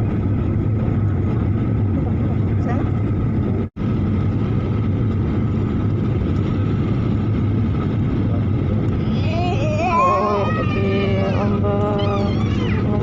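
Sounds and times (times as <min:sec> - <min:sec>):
water and wind noise: 0:00.0 - 0:13.0
motorboat engine running: 0:09.8 - 0:13.0.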